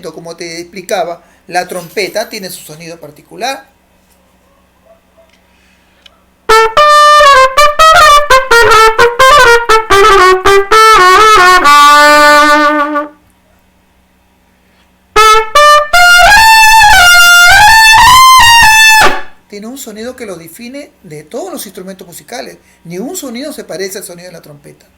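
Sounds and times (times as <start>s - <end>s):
trumpet playing short notes: 6.5s - 13.2s, 15.2s - 19.4s.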